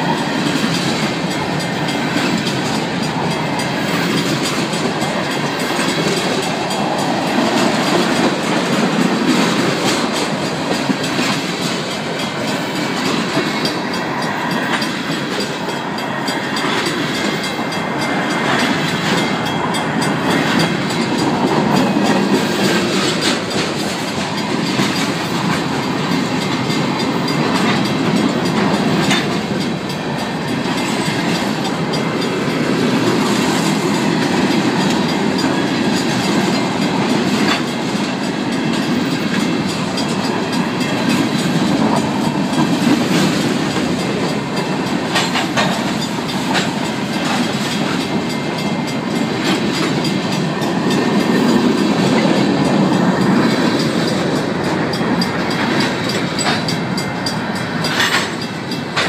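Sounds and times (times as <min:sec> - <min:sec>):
crossing bells ringing: 0:00.0 - 0:59.0
freight train wheels rumbling: 0:00.0 - 0:59.0
wheels clicking over rail joints: 0:00.0 - 0:59.0.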